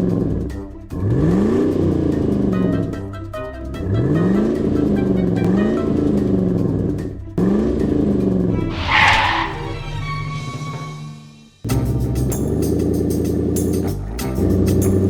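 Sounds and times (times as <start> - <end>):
background music: 0.0 - 8.8
cartoon car engine revving: 3.8 - 6.8
short hissing skid: 8.6 - 9.9.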